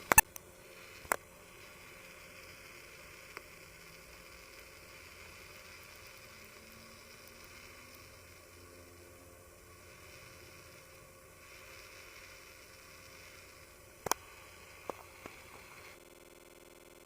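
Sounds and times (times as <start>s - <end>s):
sharp clicks: 0.0s - 1.2s, 14.0s - 15.4s
faint steady hiss: 0.0s - 16.2s
even hum: 0.0s - 17.0s.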